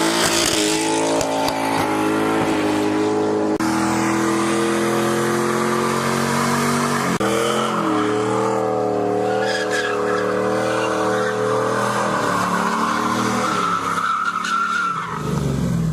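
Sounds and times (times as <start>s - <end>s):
engine at high revs: 0.0s - 14.0s
tyres squealing: 9.1s - 15.2s.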